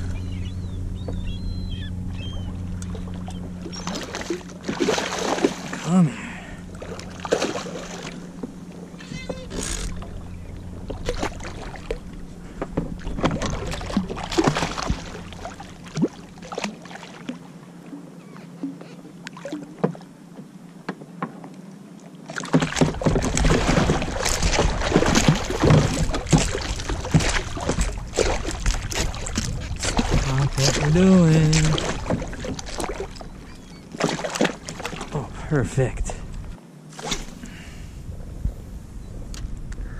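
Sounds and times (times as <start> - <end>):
rumble on the microphone: 0.0 - 19.0, 22.8 - 36.6, 37.2 - 39.9
water splashing around a kayak: 0.0 - 38.6.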